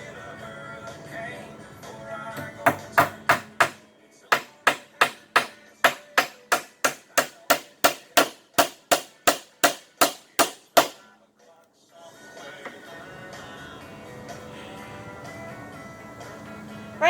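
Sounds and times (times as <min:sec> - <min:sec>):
hammer striking nail into wood: 0:02.4 - 0:11.0.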